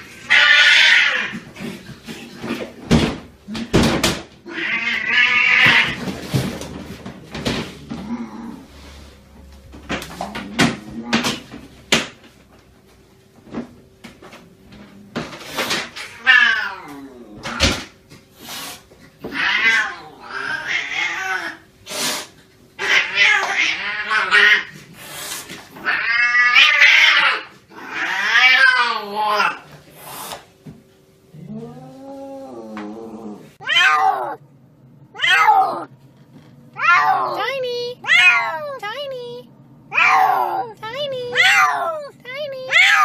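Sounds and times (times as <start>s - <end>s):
cats meowing: 0.0s - 1.4s, 4.4s - 6.0s, 16.0s - 17.7s, 19.2s - 21.6s, 22.8s - 24.8s, 25.8s - 29.6s, 31.4s - 34.4s, 35.1s - 35.9s, 36.8s - 43.0s.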